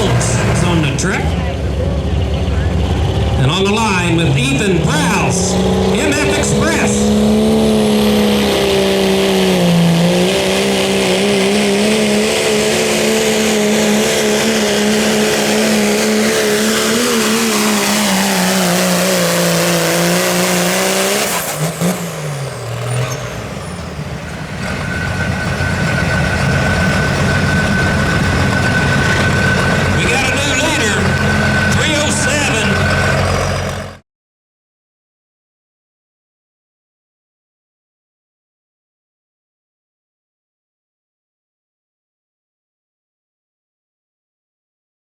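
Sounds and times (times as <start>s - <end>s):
diesel engine at high revs: 0.0s - 34.0s.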